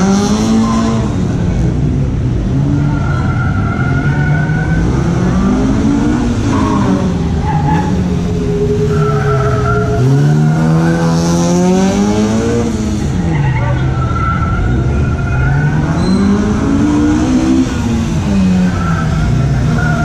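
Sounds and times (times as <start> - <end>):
car engine revving: 0.0 - 20.0
tyre squeal: 13.1 - 16.8.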